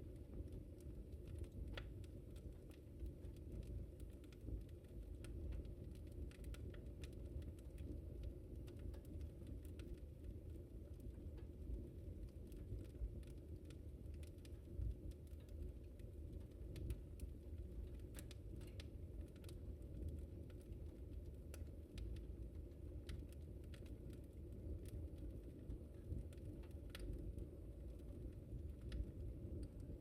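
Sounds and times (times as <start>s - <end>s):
fireplace fire crackling: 0.0s - 30.0s.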